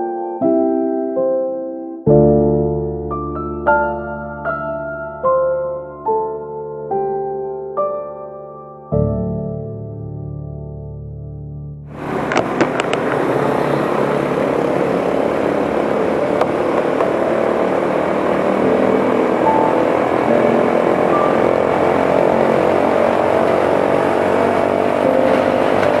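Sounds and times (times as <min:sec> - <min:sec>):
piano music: 0:00.0 - 0:26.0
road and wind noise: 0:11.9 - 0:26.0
motorcycle engine running: 0:12.0 - 0:26.0.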